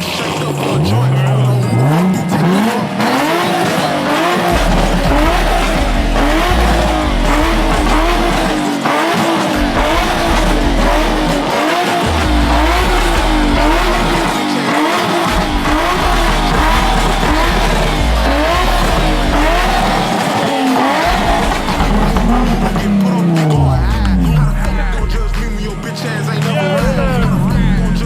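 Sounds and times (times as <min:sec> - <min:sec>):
car tyres squealing: 0:00.0 - 0:28.0
deep low rumble: 0:12.1 - 0:14.4, 0:23.6 - 0:25.9, 0:26.8 - 0:28.0.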